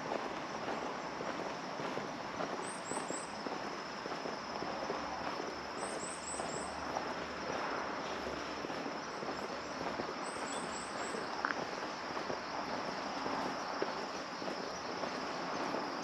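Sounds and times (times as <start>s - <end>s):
steady background noise: 0.0s - 16.0s
small bird chirping: 10.2s - 11.6s.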